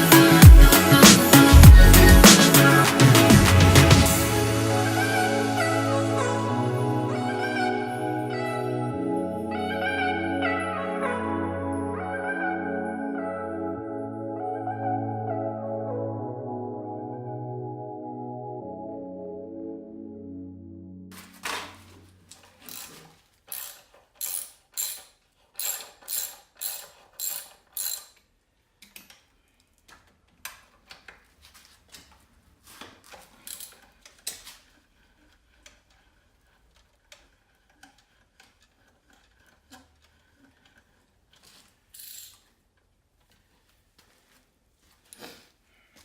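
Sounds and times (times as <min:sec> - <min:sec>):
ratchet wrench clicking: 0:22.6 - 0:28.3, 0:33.4 - 0:34.5, 0:41.9 - 0:42.5
tools tapping on metal: 0:23.6 - 0:28.2.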